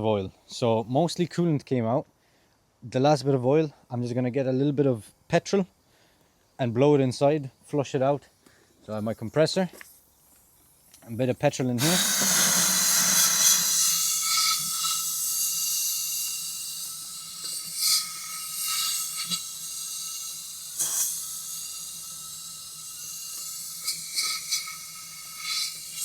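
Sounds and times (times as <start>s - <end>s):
compressed-air gun hissing: 9.8s - 26.0s.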